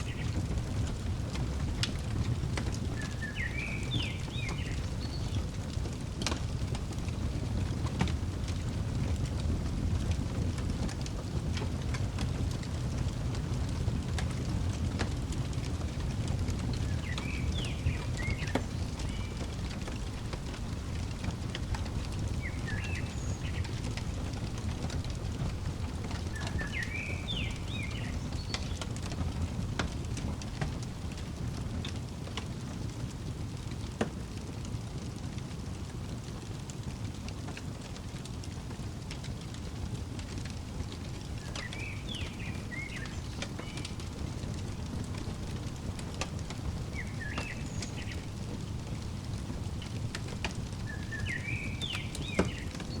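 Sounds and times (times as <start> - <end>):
songbird chirping: 0.0 - 7.6, 16.0 - 31.3, 40.8 - 53.0
wood fire crackling: 0.0 - 53.0.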